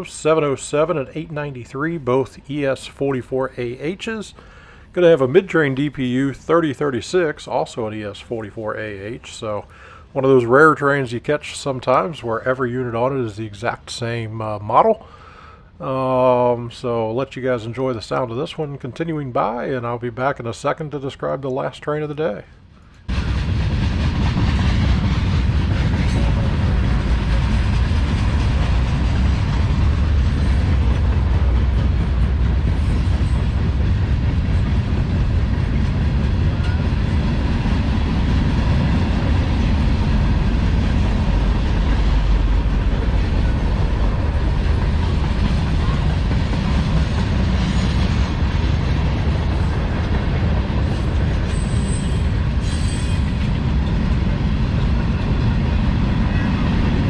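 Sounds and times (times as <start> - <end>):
freight train rumbling past: 0.0 - 18.4, 22.4 - 57.0
high wheel squeals: 32.6 - 33.6, 50.8 - 53.6.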